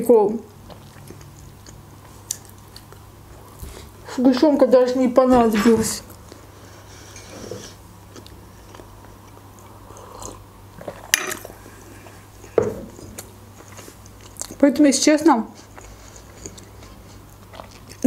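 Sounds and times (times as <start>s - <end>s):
person chewing food: 0.5s - 4.0s, 6.1s - 14.6s, 15.6s - 18.0s.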